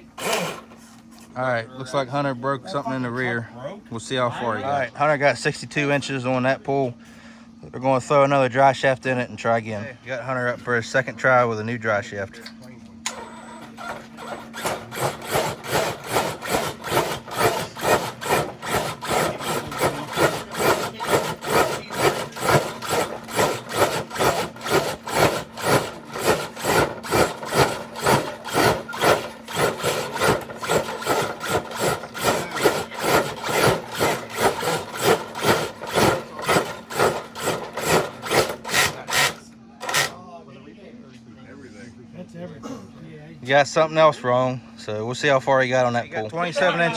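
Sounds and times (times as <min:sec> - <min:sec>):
low motor hum: 0:13.1 - 0:40.1.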